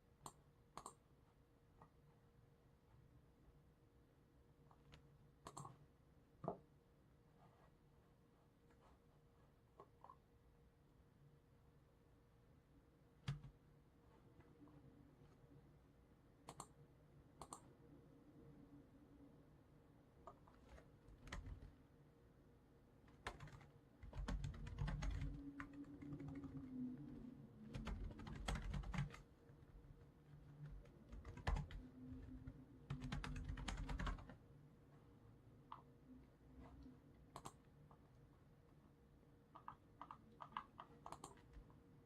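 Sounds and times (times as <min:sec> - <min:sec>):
typing on computer keyboard: 0:13.2 - 0:13.6, 0:20.7 - 0:21.7, 0:23.1 - 0:34.4, 0:37.3 - 0:37.6, 0:39.5 - 0:41.7.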